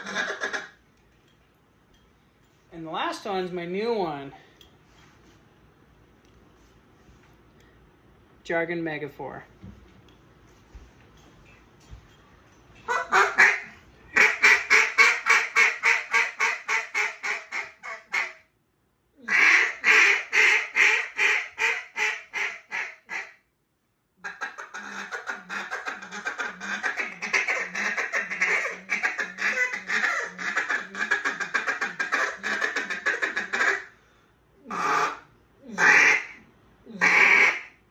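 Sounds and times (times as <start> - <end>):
duck call feeding chuckle: 0.0 - 0.8, 12.9 - 18.3, 19.3 - 23.3, 24.2 - 33.9, 34.7 - 35.2, 35.8 - 36.4, 37.0 - 37.7
duck call quacks: 0.0 - 0.8, 12.9 - 18.4, 19.2 - 23.4, 24.2 - 33.9, 34.7 - 35.2, 35.8 - 36.4, 37.0 - 37.8.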